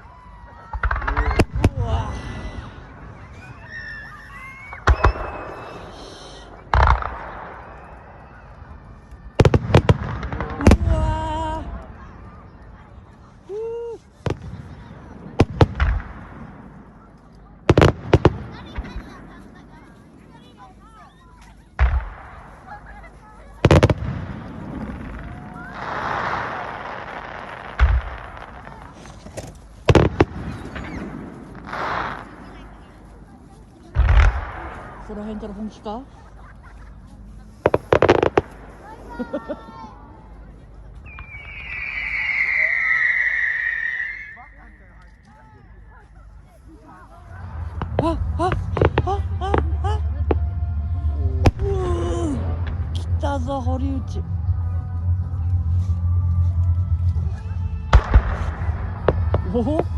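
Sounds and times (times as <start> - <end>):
firework crackling: 0.0 - 12.1, 17.6 - 40.2, 40.9 - 44.7, 46.7 - 59.9
firework bangs: 0.7 - 11.6, 14.2 - 20.6, 21.8 - 36.6, 37.7 - 39.7, 41.0 - 44.4, 47.4 - 50.4, 57.9 - 59.9
firework whistles: 3.2 - 8.6, 41.0 - 44.6
firework shells booming: 4.7 - 7.8, 23.6 - 32.5.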